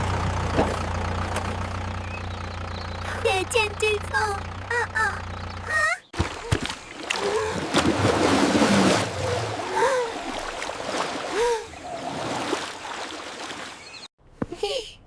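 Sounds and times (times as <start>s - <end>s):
low engine hum: 0.0s - 14.1s
water splashing and sloshing: 6.1s - 14.1s.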